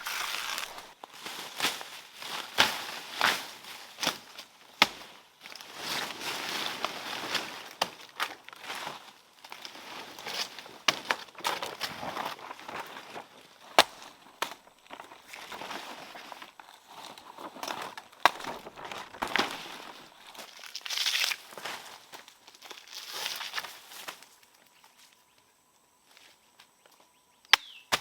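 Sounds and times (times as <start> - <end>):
rustling and crackling: 0.0 - 4.4, 5.0 - 25.2.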